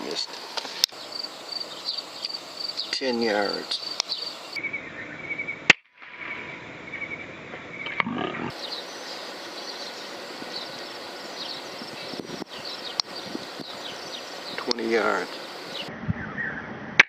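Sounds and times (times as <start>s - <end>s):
insects chirping: 0.0s - 15.9s
low animal call: 7.8s - 16.6s.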